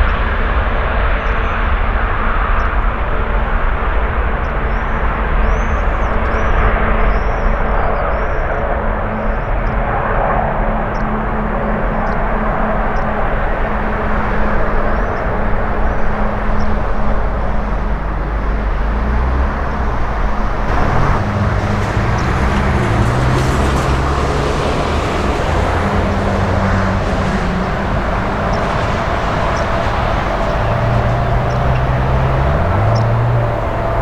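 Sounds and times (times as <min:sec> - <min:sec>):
jet engines running: 0:10.9 - 0:34.0.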